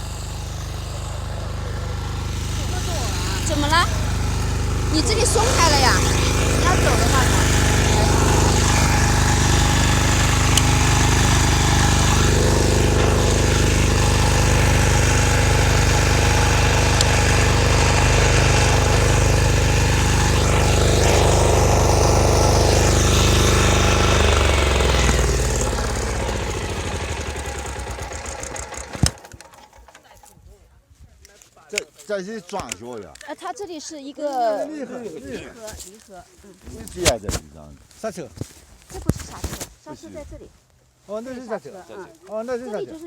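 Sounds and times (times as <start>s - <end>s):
walking tractor engine running: 0.0s - 30.4s.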